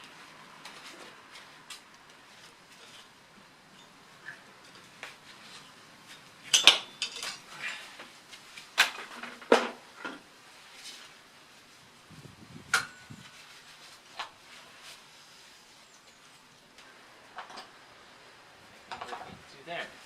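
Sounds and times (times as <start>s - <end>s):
metal hand tools clinking: 6.1s - 7.5s.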